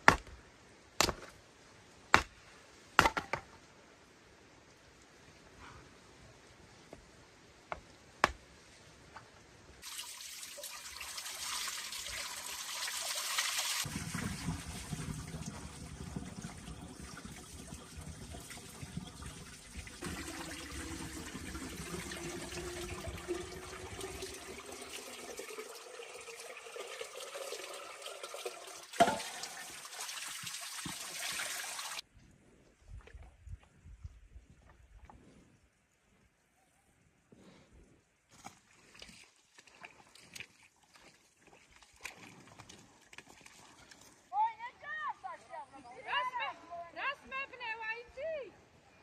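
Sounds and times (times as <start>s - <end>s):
water running and splashing: 9.8s - 32.0s, 38.4s - 44.4s.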